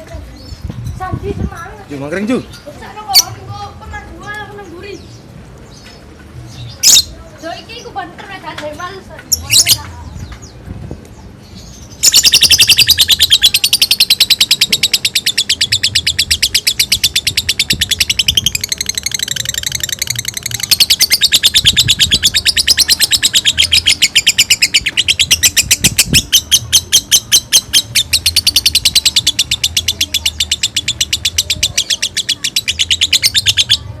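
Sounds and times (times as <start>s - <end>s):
lovebird chattering: 9.2s - 9.9s, 11.5s - 34.0s.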